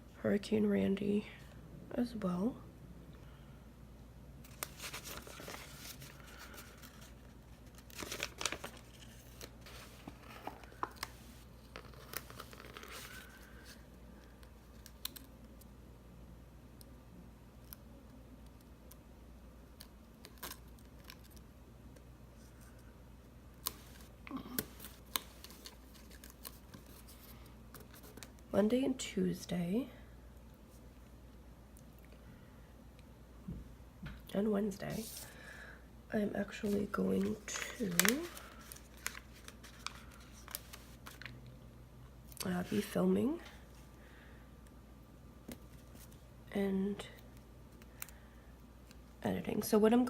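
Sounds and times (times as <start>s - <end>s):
faint paper rustling: 4.4s - 15.3s, 23.6s - 28.4s, 34.9s - 35.4s, 36.4s - 41.4s, 42.4s - 43.9s, 45.5s - 46.2s.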